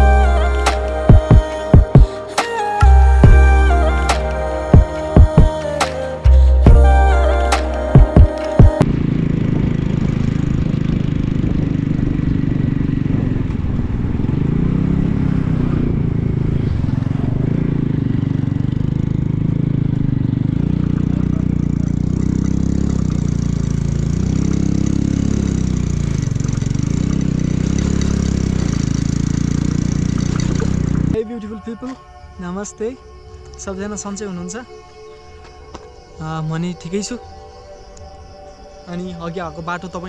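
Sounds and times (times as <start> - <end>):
vehicle engine revving: 0.0 - 31.2.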